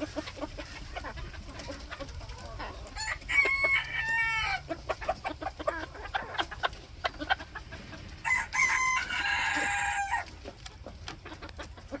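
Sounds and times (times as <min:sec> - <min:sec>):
rooster clucking: 0:00.0 - 0:12.0
rooster crowing: 0:03.0 - 0:04.6, 0:08.2 - 0:10.2.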